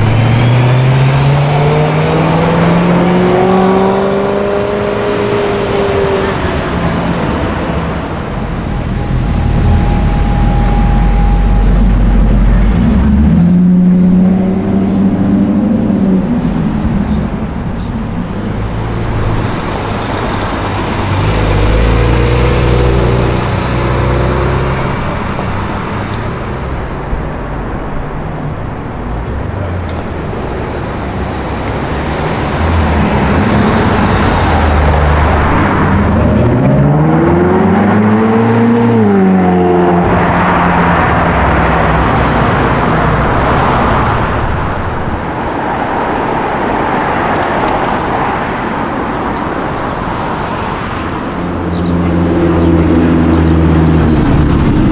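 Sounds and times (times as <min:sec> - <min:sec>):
car engine revving: 0:00.0 - 0:26.2, 0:30.7 - 0:48.2
city traffic: 0:00.0 - 0:54.9.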